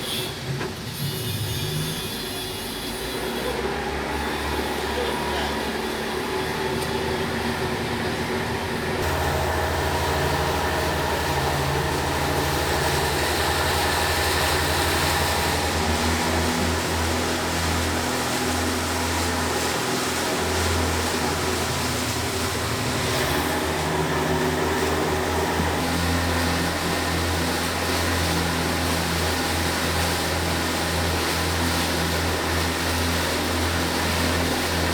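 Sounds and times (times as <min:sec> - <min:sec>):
boat engine humming: 0:02.0 - 0:34.9.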